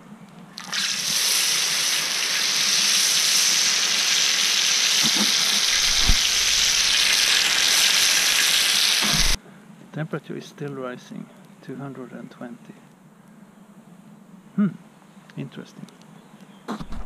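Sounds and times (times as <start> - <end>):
fruit sizzling in hot oil: 0.6 - 9.4.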